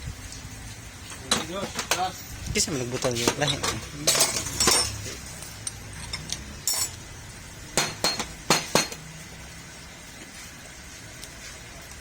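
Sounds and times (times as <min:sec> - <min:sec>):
metallic clinks of tools: 0:03.6 - 0:07.0.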